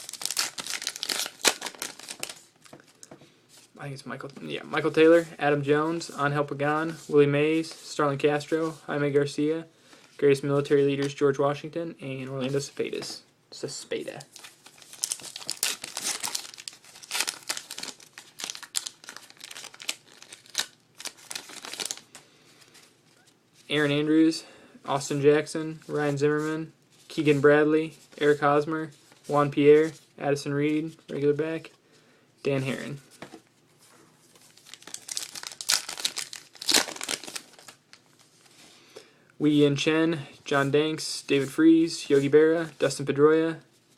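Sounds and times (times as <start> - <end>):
plastic wrapper tearing and crinkling: 0.0 - 3.0, 14.3 - 22.2, 34.4 - 38.2.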